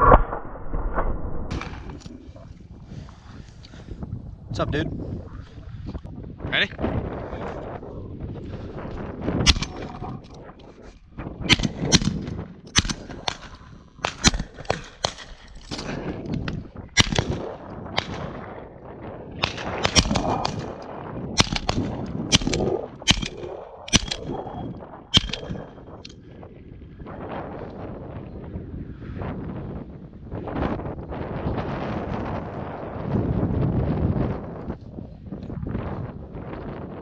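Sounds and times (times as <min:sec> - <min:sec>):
gunshots: 0:09.4 - 0:10.2, 0:11.5 - 0:16.1, 0:17.0 - 0:18.4, 0:19.4 - 0:20.8, 0:21.4 - 0:26.1.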